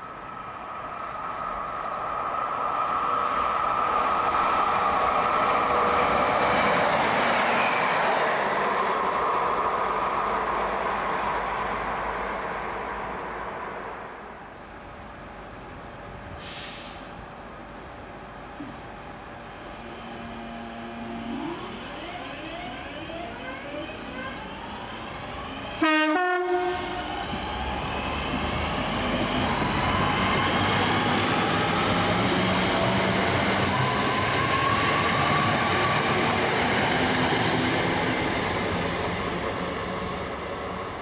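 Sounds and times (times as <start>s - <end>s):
train horn blast: 20.0s - 21.7s, 25.8s - 27.1s.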